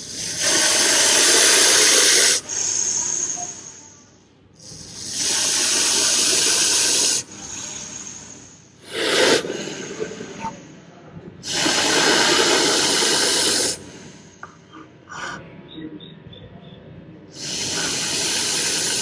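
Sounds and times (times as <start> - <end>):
snake hissing: 0.0 - 4.0, 4.6 - 10.6, 11.4 - 14.4, 17.4 - 19.0.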